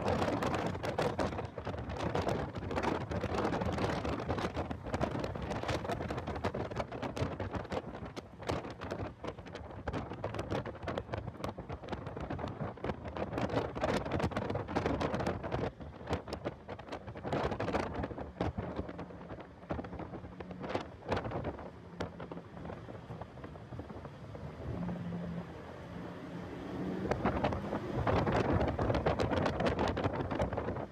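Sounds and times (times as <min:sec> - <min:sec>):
wind buffeting microphone: 0:00.0 - 0:30.9
car engine: 0:20.4 - 0:30.9.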